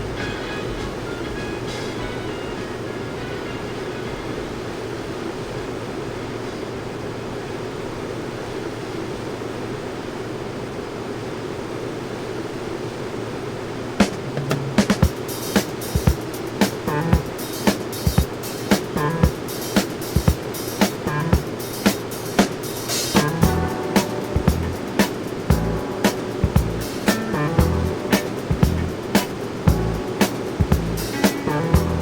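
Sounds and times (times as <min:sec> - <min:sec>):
aircraft cabin rushing hiss: 0:00.0 - 0:07.0, 0:14.0 - 0:32.0
drum kit steady beat: 0:14.0 - 0:32.0
pop band backing: 0:14.0 - 0:32.0
low engine drone: 0:16.8 - 0:17.4, 0:20.9 - 0:21.5, 0:23.0 - 0:32.0.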